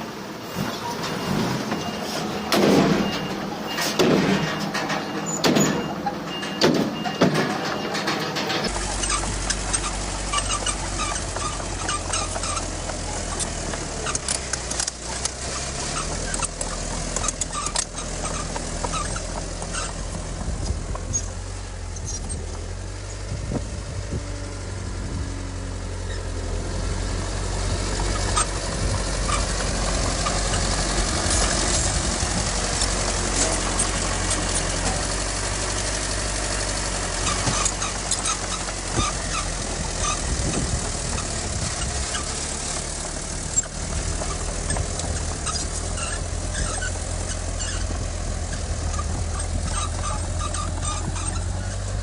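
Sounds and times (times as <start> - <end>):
diesel machinery engines running: 0.0 - 52.0
sharp metal knocks and clanks: 0.7 - 23.2.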